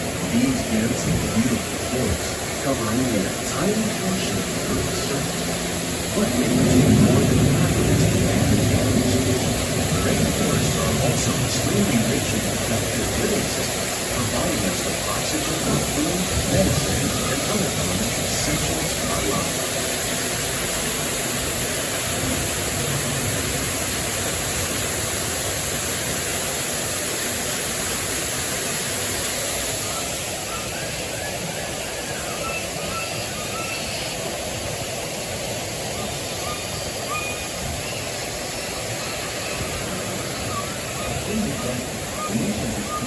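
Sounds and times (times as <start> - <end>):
falling water rushing: 0.0 - 43.0
faint bird chirps: 29.9 - 34.2, 36.0 - 38.2.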